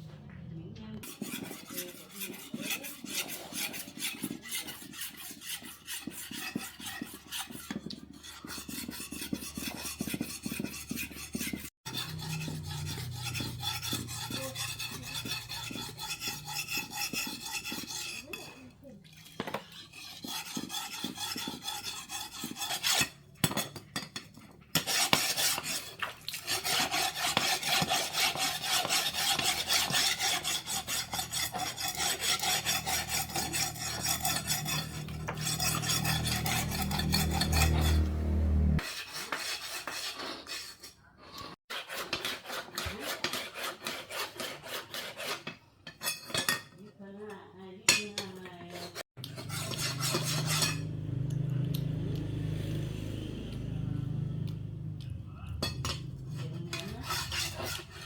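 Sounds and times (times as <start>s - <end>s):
abrasive scraping strokes: 1.0s - 18.7s, 24.8s - 45.4s, 48.7s - 51.2s, 55.6s - 58.0s.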